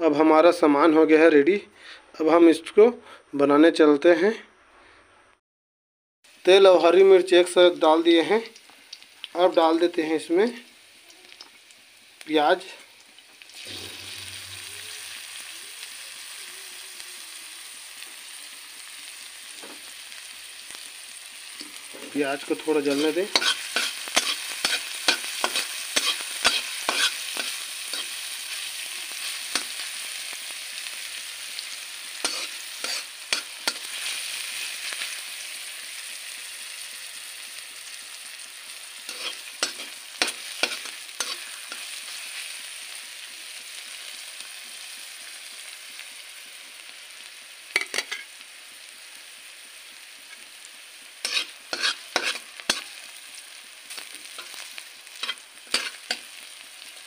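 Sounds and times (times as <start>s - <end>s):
onion sizzling in hot oil: 6.3s - 57.0s
spatula scraping a pan: 22.5s - 28.5s, 32.2s - 35.0s, 39.1s - 42.4s, 51.2s - 53.0s, 53.9s - 56.4s.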